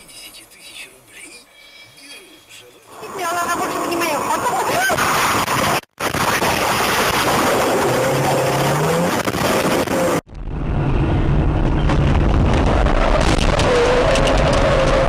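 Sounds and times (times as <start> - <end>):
road noise: 0.0 - 15.0
car engine rumble: 2.4 - 15.0.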